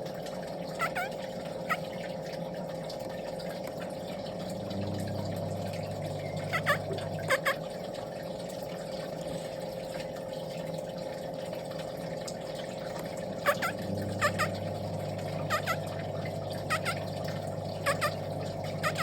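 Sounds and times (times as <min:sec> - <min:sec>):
steady mechanical hum: 0:00.0 - 0:19.0
bird calls: 0:00.8 - 0:01.9, 0:06.1 - 0:07.6, 0:13.4 - 0:14.6, 0:15.3 - 0:15.9, 0:16.6 - 0:17.1, 0:17.8 - 0:18.2, 0:18.8 - 0:19.0.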